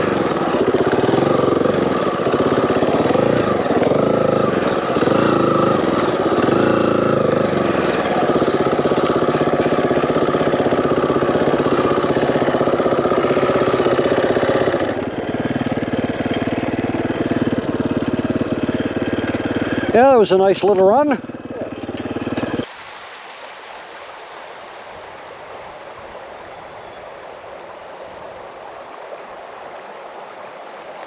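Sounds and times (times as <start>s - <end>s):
dirt bike engine revving: 0.0s - 22.7s.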